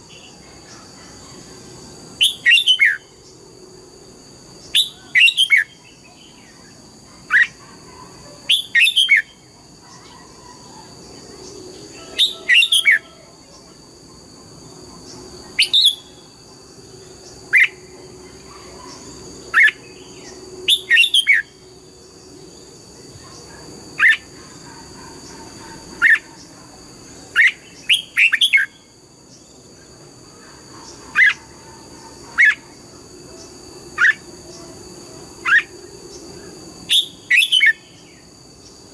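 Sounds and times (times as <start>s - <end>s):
bulbul singing whistled phrases: 2.2s - 3.1s, 4.7s - 6.6s, 8.5s - 9.4s, 15.5s - 16.3s, 36.9s - 38.1s.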